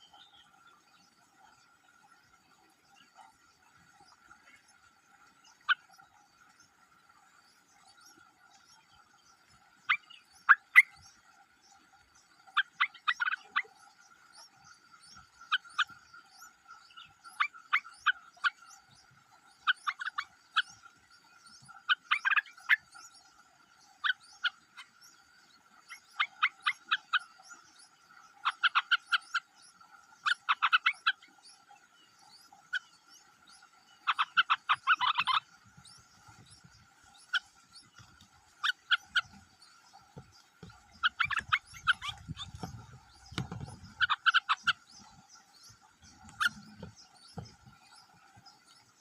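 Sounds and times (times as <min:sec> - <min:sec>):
sharp animal calls: 0:40.9 - 0:42.8, 0:46.2 - 0:46.9.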